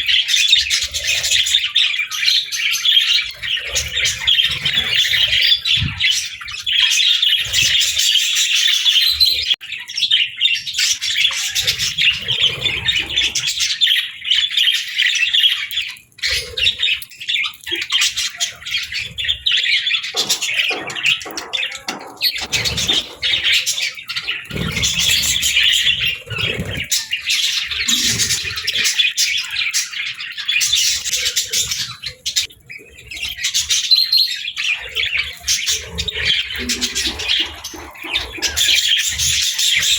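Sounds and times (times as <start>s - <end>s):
budgerigars chattering and warbling: 0.0s - 39.9s
knocks and thumps: 20.2s - 23.5s.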